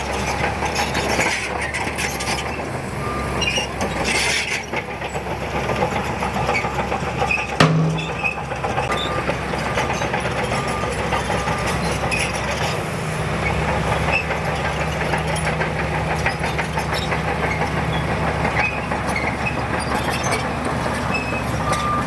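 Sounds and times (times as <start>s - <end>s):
heavy diesel machinery running: 0.0s - 22.0s
sharp metallic clank: 7.6s - 8.3s.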